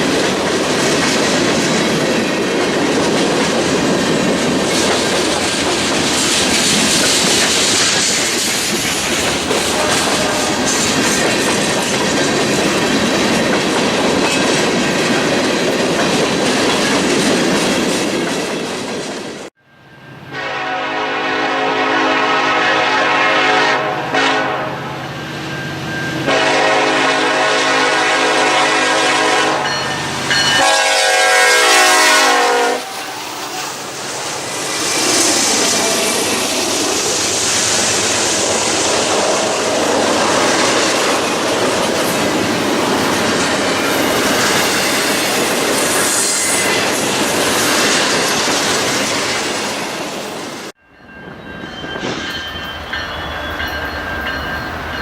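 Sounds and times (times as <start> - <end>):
train wheels rumbling on rail: 0.0 - 19.6, 20.4 - 55.0
diesel locomotive engine: 0.0 - 55.0
locomotive air horn blasts: 9.7 - 10.7, 20.3 - 25.0, 26.2 - 29.8, 30.5 - 33.8.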